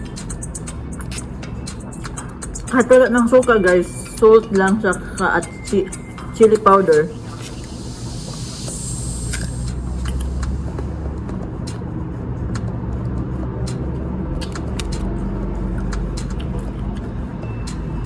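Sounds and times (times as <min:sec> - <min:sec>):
mouth clicks and smacks eating: 0:00.0 - 0:02.7, 0:14.4 - 0:15.1
vehicle engine running: 0:00.0 - 0:18.0.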